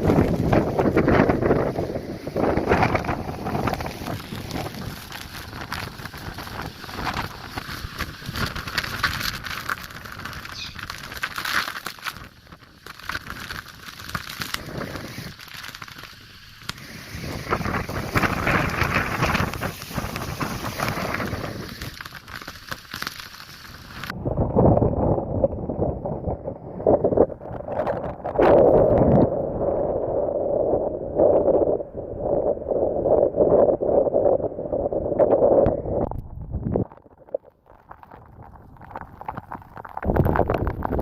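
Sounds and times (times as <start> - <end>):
wind buffeting microphone: 0.0 - 11.3, 16.8 - 21.9, 24.0 - 37.0, 37.9 - 41.0
gusting wind: 0.0 - 22.7, 23.5 - 41.0.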